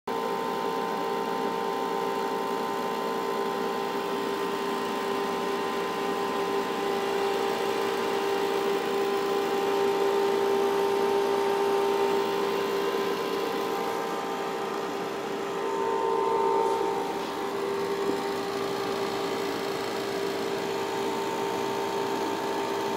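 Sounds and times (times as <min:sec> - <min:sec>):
cooling fans whirring: 0:00.1 - 0:22.9
constant tone: 0:06.8 - 0:22.8.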